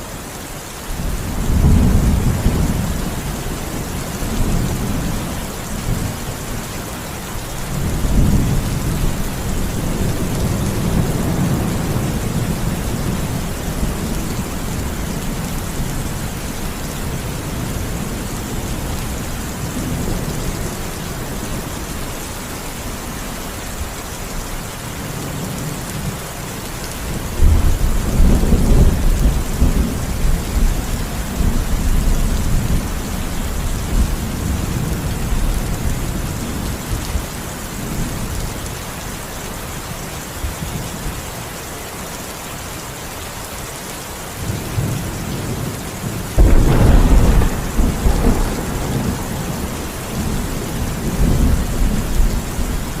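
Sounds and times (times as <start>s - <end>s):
heavy rain hissing: 0.0s - 53.0s
rolling thunder: 27.3s - 37.2s, 46.4s - 53.0s
loud thunderclap: 46.4s - 52.4s.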